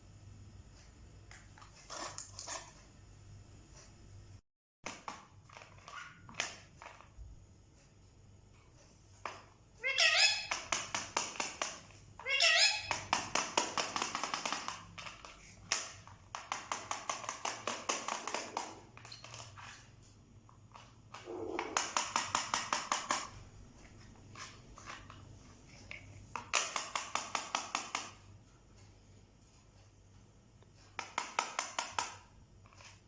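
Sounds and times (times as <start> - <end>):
parrot rapid clicking: 9.8 - 19.4, 21.1 - 23.4, 26.4 - 28.3.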